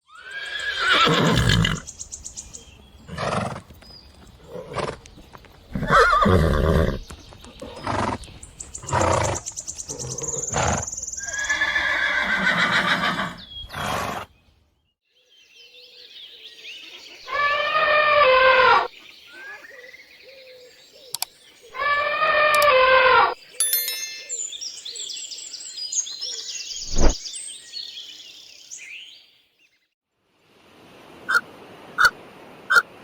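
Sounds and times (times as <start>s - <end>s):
horse whinnying: 0.1s - 1.9s, 3.1s - 3.7s, 4.4s - 5.1s, 5.7s - 7.0s, 8.8s - 14.3s, 21.8s - 23.4s.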